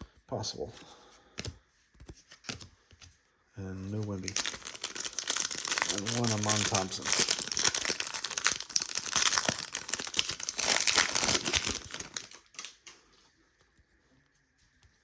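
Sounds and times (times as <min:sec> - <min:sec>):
plastic wrapper crinkling and tearing: 0:04.0 - 0:13.0.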